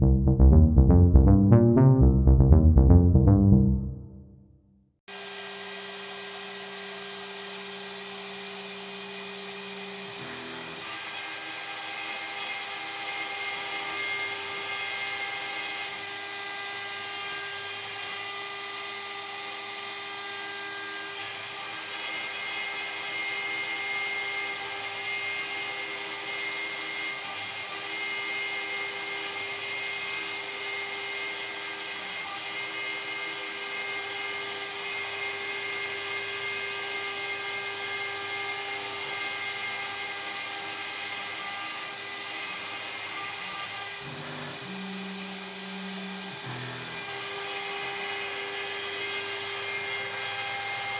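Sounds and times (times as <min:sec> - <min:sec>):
low hum: 0:00.0 - 0:04.4
cnc router spindle whine: 0:44.4 - 0:50.9.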